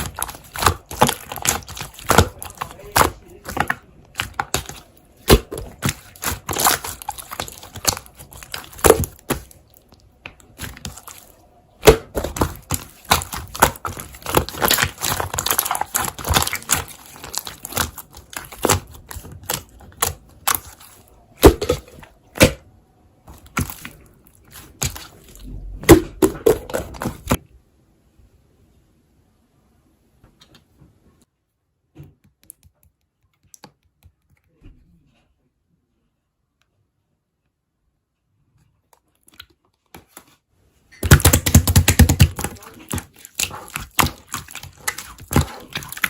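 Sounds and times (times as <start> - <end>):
slime squishing with clicks and pops: 0.0 - 22.7, 23.3 - 27.4, 41.0 - 46.0.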